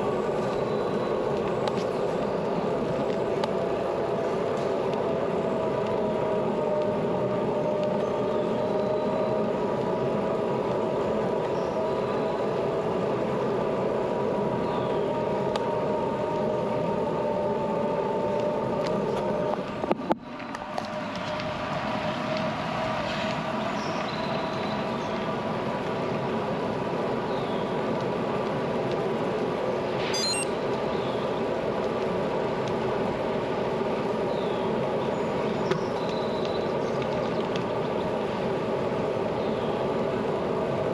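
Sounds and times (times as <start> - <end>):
bicycle tyre noise: 0.0 - 23.8
faint steady hum: 0.0 - 40.9
wind and road noise: 0.0 - 40.9
high chirping: 30.2 - 30.5.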